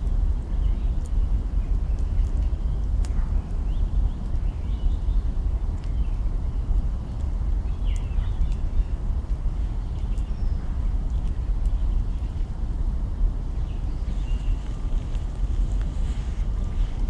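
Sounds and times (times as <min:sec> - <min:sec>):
campfire crackling: 0:14.0 - 0:17.0.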